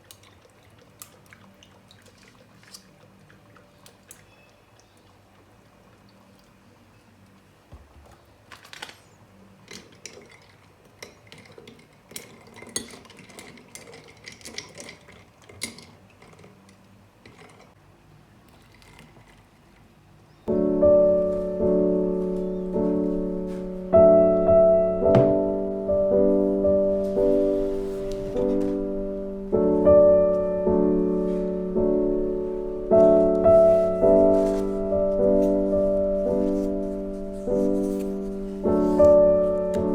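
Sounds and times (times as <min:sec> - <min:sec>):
dishes and cutlery clinking: 0:09.6 - 0:16.5
slow soft piano chords: 0:20.5 - 0:39.9.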